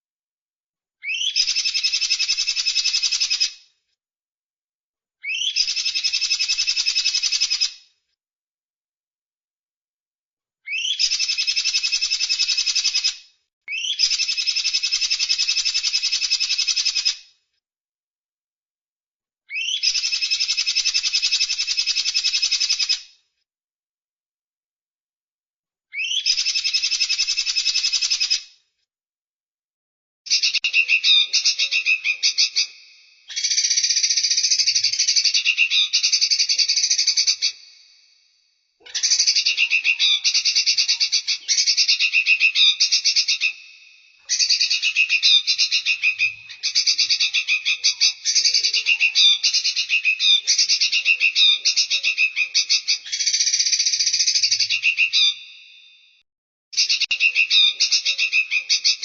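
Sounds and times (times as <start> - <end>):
songbird chattering trills: 30.3 - 37.6, 38.9 - 43.6, 44.3 - 55.4.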